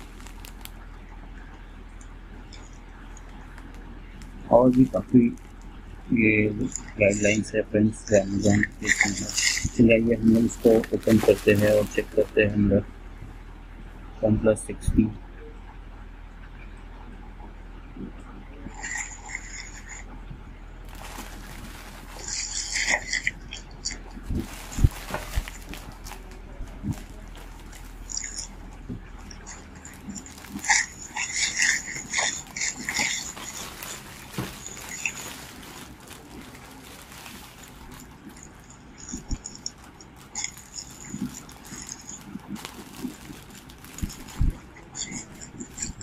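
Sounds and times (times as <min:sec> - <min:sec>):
packaging rustling: 0:00.0 - 0:00.9, 0:02.5 - 0:12.6, 0:20.8 - 0:46.0
small clicks and crackles: 0:00.0 - 0:14.0, 0:14.9 - 0:46.0
low mains hum: 0:00.0 - 0:46.0.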